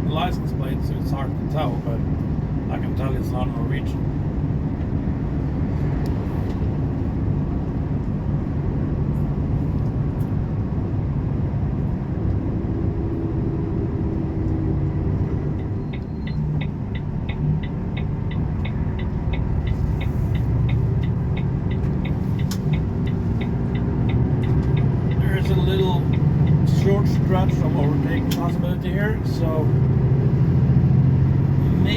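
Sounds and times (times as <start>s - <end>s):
truck diesel engine rumble: 0.0s - 31.9s
turn signal ticking: 14.2s - 29.6s.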